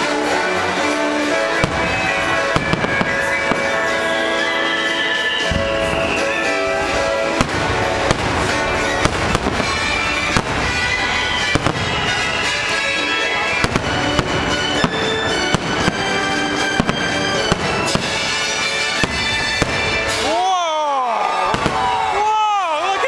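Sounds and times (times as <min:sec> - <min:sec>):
fireworks bangs and cracks: 0:00.0 - 0:20.5, 0:21.2 - 0:23.0
loud music: 0:00.0 - 0:23.0.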